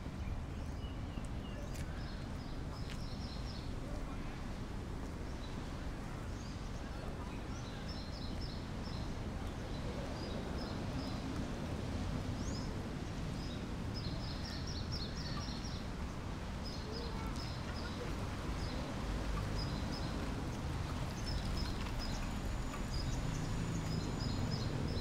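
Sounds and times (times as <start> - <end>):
busy city street noise: 0.0 - 25.0
small birds chirping: 16.6 - 25.0.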